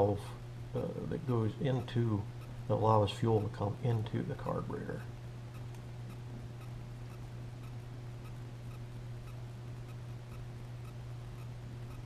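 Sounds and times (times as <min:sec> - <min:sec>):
steady low hum: 0:00.0 - 0:12.0
faint regular ticks: 0:04.9 - 0:12.0.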